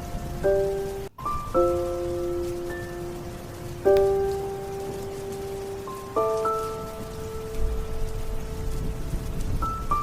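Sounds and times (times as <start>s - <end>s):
steady rain: 0.0s - 10.0s.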